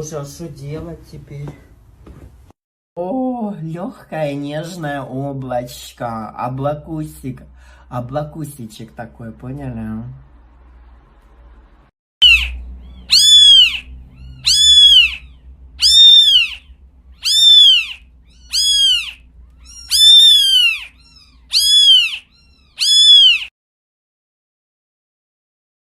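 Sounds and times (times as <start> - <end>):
cat meowing: 12.2 - 23.5.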